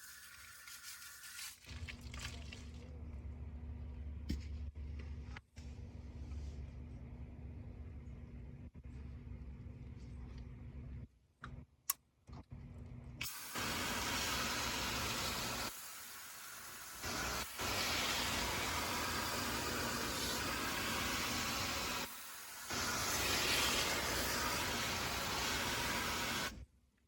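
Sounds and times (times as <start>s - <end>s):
loud rushing hiss: 13.3s - 26.5s.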